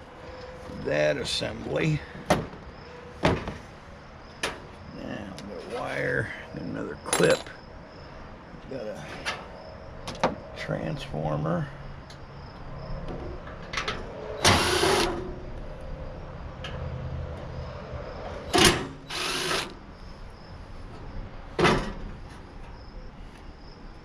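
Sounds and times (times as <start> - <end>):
power drill bursts: 14.4 - 15.2, 18.5 - 19.8.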